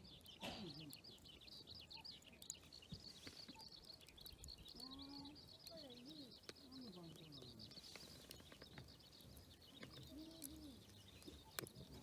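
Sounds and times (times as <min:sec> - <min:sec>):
high-pitched chirping chorus: 0:00.0 - 0:12.0.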